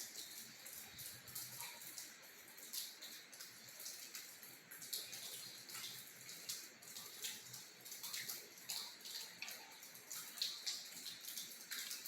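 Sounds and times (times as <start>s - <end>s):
rain dripping and splashing: 0.0s - 12.0s.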